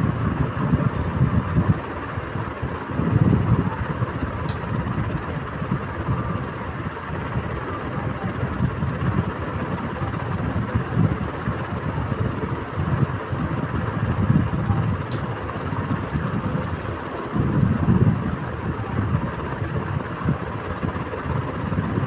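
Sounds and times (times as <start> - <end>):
electric fan running: 0.0 - 22.0
sharp tick: 15.1 - 15.3.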